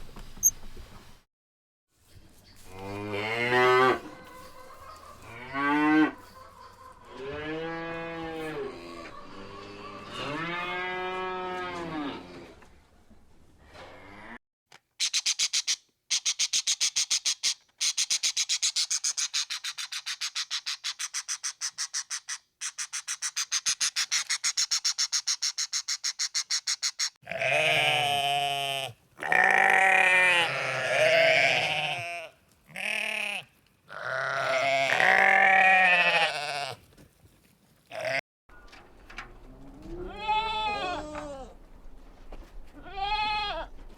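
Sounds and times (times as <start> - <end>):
livestock bleating: 7.2 - 12.4, 27.2 - 36.8, 37.9 - 38.2, 39.9 - 41.6, 42.8 - 43.7.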